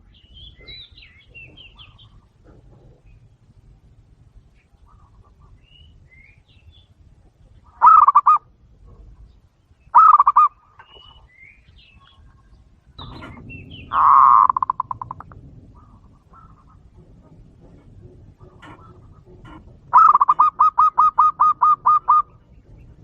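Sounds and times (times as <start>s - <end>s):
doves cooing: 7.5s - 23.0s.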